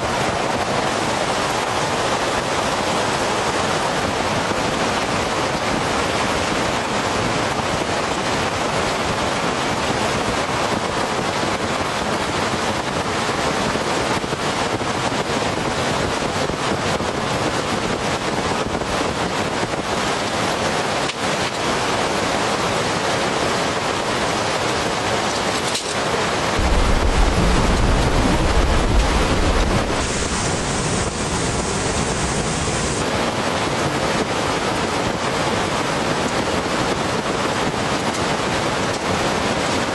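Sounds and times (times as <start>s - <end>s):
heavy rain pouring: 0.0s - 39.9s
thunder rumble: 26.6s - 33.0s.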